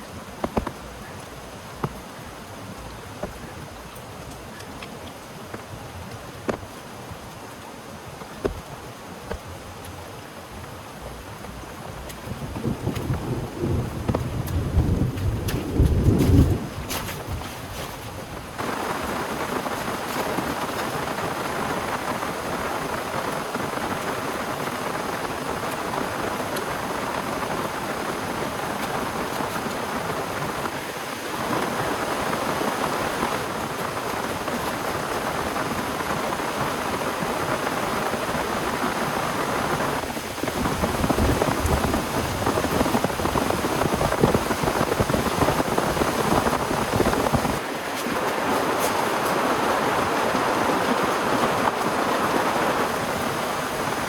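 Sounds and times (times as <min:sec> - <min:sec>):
heavy rain falling: 0:00.0 - 0:54.0
thunder rumbling: 0:12.3 - 0:17.8.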